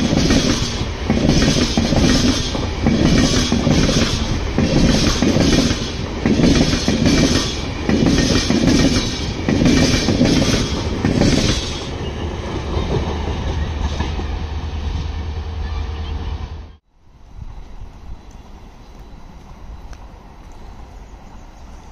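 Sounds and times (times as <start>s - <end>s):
train wheels clattering over rail joints: 0.0s - 14.3s
train rumble with faint hum: 0.0s - 21.9s.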